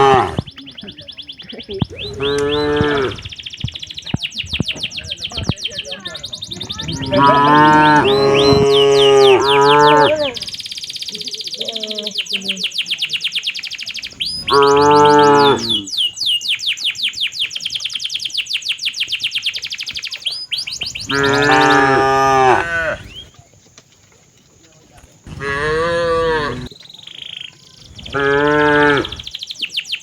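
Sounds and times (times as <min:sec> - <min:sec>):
cattle mooing: 0:00.0 - 0:00.4, 0:02.0 - 0:03.3, 0:06.6 - 0:10.4, 0:14.4 - 0:15.9, 0:21.0 - 0:23.2, 0:25.3 - 0:26.7, 0:28.1 - 0:29.3
fast high chirps: 0:00.4 - 0:23.3, 0:25.3 - 0:30.0.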